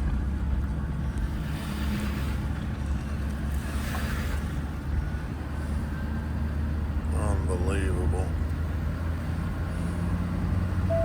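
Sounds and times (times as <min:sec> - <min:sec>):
truck engine and road drone: 0:00.0 - 0:11.0.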